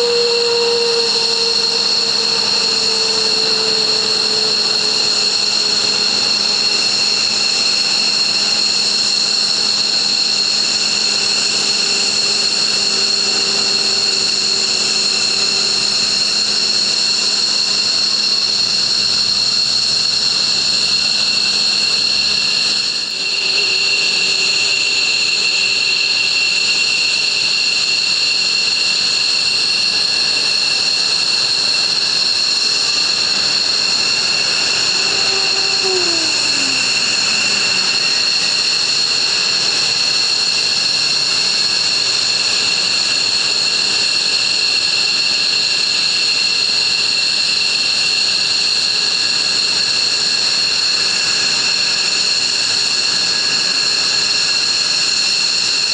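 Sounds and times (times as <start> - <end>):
jet exhaust rush: 0.0 - 17.0, 22.5 - 26.8, 30.0 - 40.3
jet turbine whine: 0.0 - 55.9.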